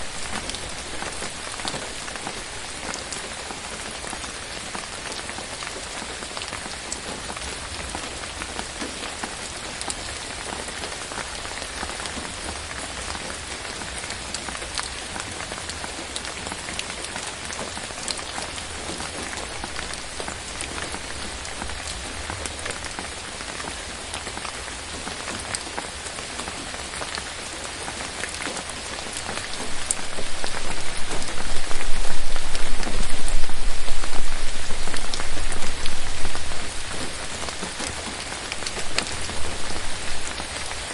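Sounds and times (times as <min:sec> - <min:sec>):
rain on foliage: 0:00.0 - 0:40.9
low rumble: 0:30.3 - 0:37.0.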